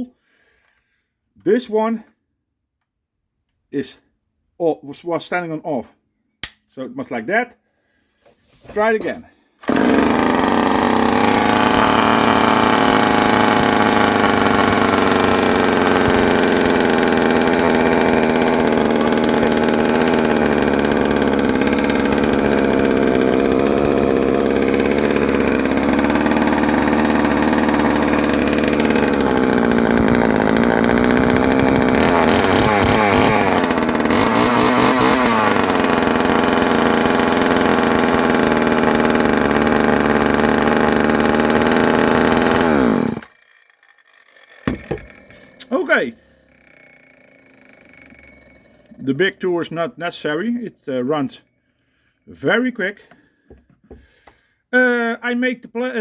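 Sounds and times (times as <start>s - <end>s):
chainsaw engine running: 9.6s - 51.3s.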